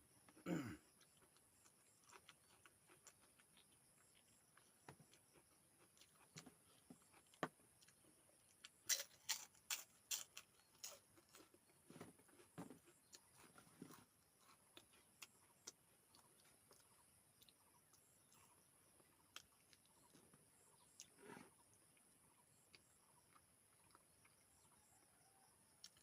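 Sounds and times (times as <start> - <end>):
chewing and mouth clicks: 0.9 - 25.0, 25.7 - 26.0.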